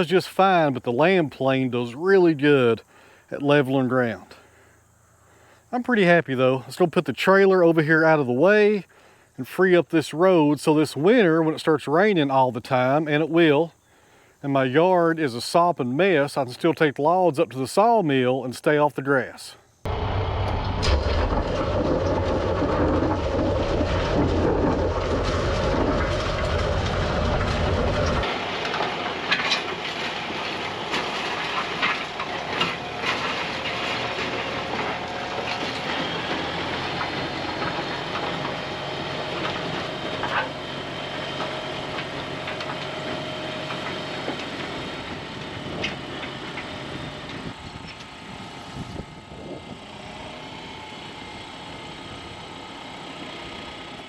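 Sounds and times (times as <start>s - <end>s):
metallic clanking and rattling: 19.9s - 46.7s
heavy equipment engine: 19.9s - 54.0s.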